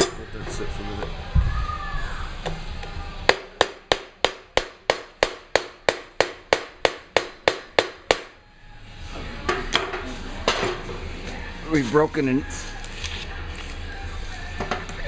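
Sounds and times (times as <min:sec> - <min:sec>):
hammer striking steel: 0:03.3 - 0:08.4.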